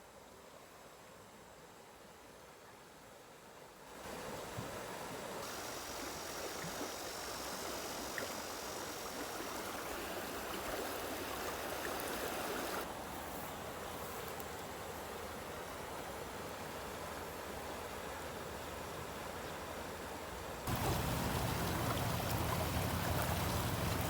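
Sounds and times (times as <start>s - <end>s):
flowing water rushing: 4.0s - 13.0s, 20.7s - 24.0s.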